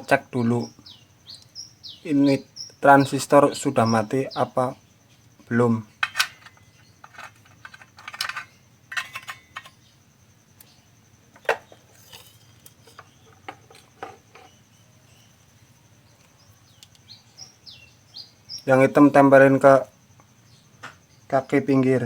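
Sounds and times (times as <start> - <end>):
small parts clicking and tapping: 5.4 - 9.9, 10.6 - 14.6, 16.1 - 17.1.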